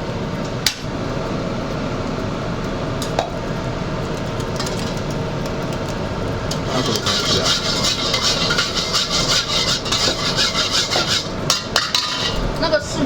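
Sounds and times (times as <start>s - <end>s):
kitchen noise: 6.5s - 12.8s
utensil clinking on cookware: 6.7s - 12.6s.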